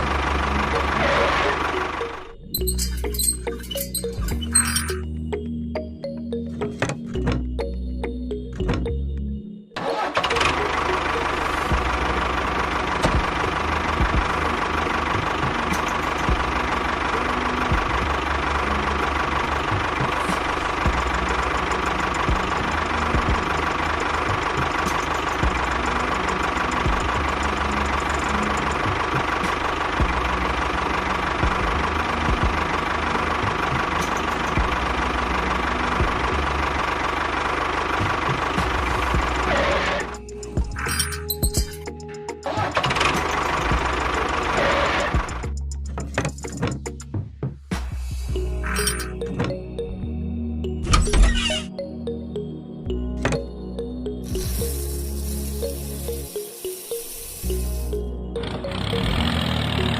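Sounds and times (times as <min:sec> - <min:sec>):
tractor engine running: 0:00.0 - 0:50.0, 0:53.1 - 0:59.9.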